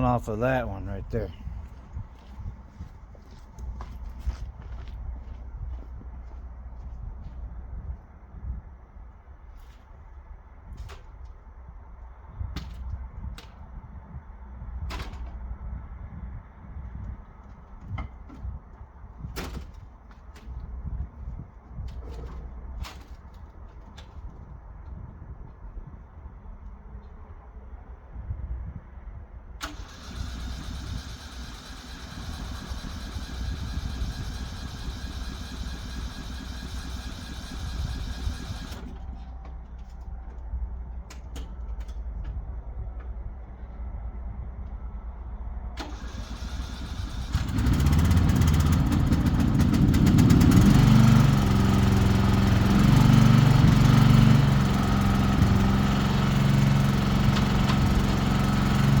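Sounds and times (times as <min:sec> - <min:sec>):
lawn mower engine running: 0:29.6 - 0:39.4, 0:45.8 - 0:59.0.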